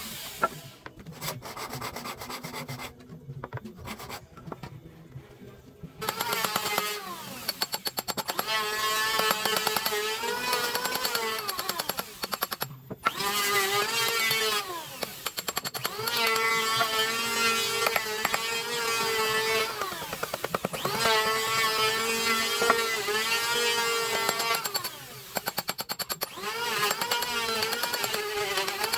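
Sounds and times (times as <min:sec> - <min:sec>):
knocks and scraping on wood: 0:00.4 - 0:05.3, 0:17.8 - 0:23.0
power tool cutting wood: 0:06.0 - 0:28.9.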